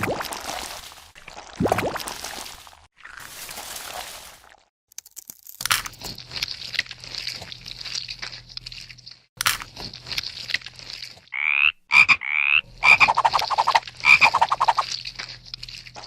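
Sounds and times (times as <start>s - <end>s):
dry crackling and crunching: 0.0s - 16.0s
rattling croak-like call: 11.3s - 15.0s.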